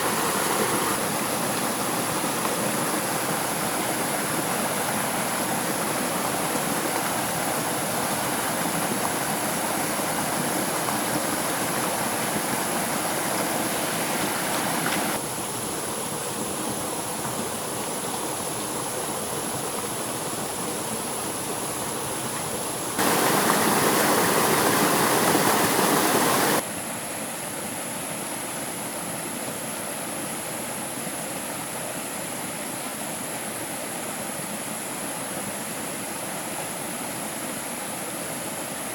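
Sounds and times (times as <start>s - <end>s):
stream water rushing: 0.0s - 26.6s.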